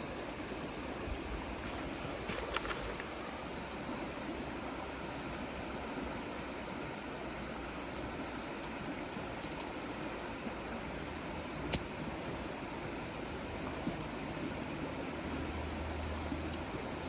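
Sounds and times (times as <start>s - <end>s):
rushing outdoor background noise: 0.0s - 17.0s
faint small ticks: 7.5s - 9.9s.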